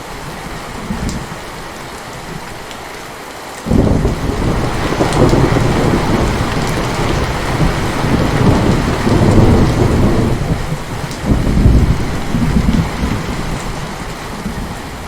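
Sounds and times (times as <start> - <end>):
heavy rain: 0.0 - 15.0
thunder rumbling: 3.7 - 15.0.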